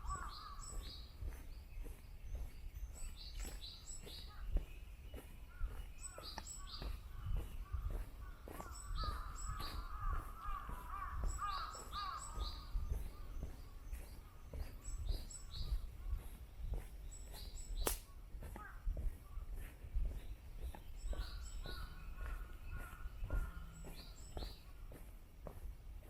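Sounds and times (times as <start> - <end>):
lower rough bird calls: 0.0 - 25.6
high falling bird calls: 0.0 - 26.0
footsteps thudding: 20.0 - 25.7.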